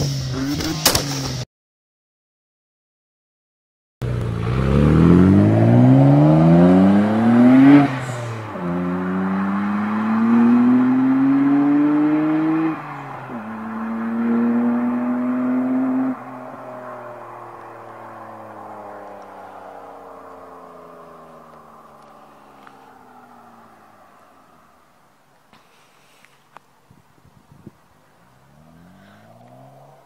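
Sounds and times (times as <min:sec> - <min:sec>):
car engine revving through gears: 0:04.0 - 0:24.0, 0:28.4 - 0:30.0.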